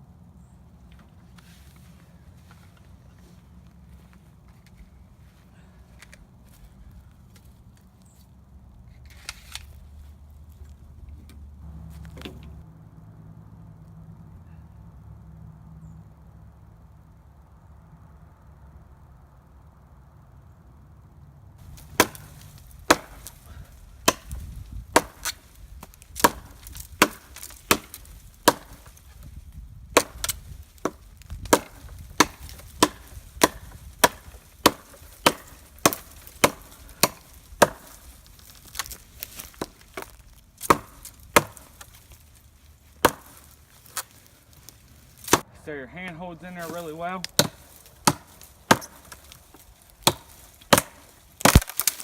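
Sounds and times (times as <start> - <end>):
knife chopping into wood: 21.7 - 29.3, 29.9 - 42.1, 43.0 - 44.1, 45.2 - 45.5, 46.6 - 52.0.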